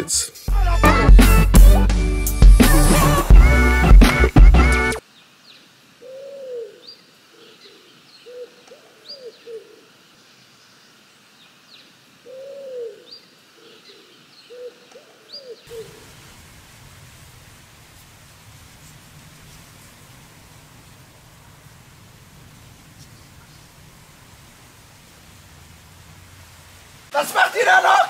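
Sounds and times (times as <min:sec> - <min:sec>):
steady hiss: 0:04.8 - 0:14.7, 0:15.7 - 0:28.0
small birds chirping: 0:05.0 - 0:16.0, 0:22.8 - 0:24.0
pigeon cooing: 0:06.0 - 0:06.8, 0:08.3 - 0:09.8, 0:12.3 - 0:13.1, 0:14.5 - 0:16.0.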